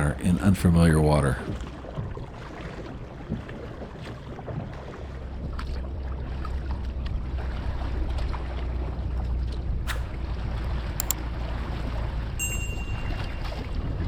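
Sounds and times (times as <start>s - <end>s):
wind rumbling on microphone: 1.3s - 11.0s
paddle splashes and drips: 1.3s - 12.2s.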